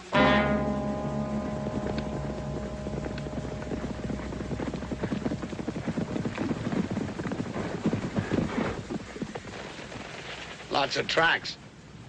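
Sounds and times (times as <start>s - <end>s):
horse hoofbeats on hard ground: 1.6s - 10.7s.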